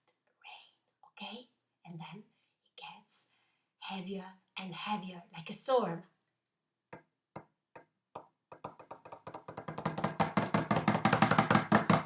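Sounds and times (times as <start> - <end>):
wooden spoons tapping bongo drum: 7.0 - 12.0.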